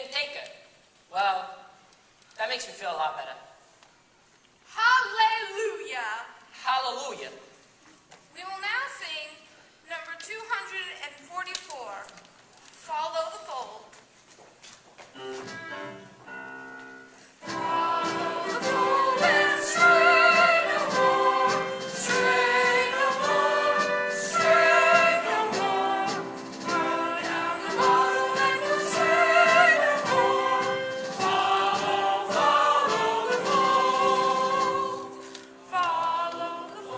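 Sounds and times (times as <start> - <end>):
choir singing with accompaniment: 17.4 - 36.9.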